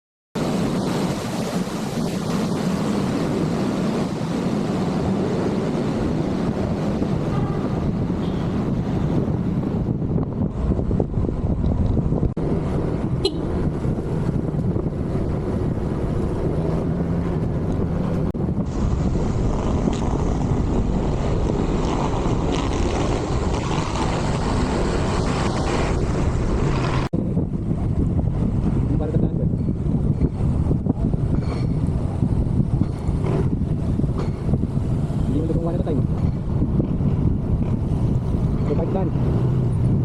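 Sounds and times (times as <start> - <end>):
wind buffeting microphone: 0.4 - 40.0.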